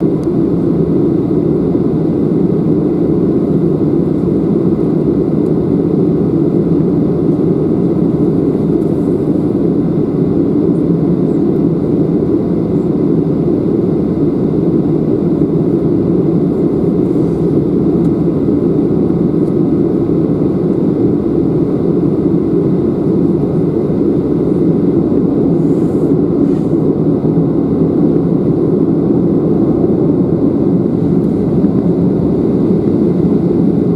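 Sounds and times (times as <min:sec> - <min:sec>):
jet engine rumble and whine: 0:00.0 - 0:33.9.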